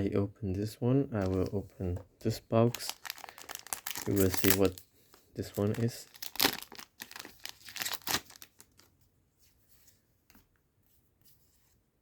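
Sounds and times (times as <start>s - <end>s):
foil pack tearing and crinkling: 2.8s - 4.8s, 5.6s - 8.9s.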